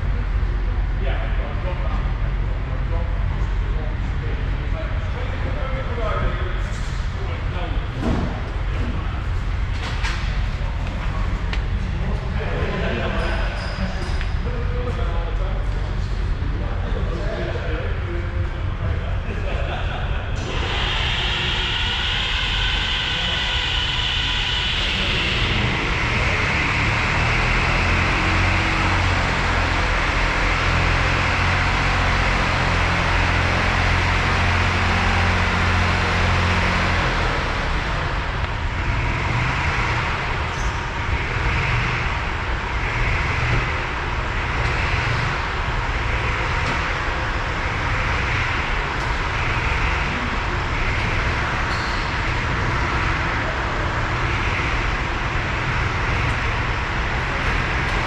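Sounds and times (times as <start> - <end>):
tractor diesel engine running: 20.3 - 58.0
regular pulsing: 20.4 - 28.7.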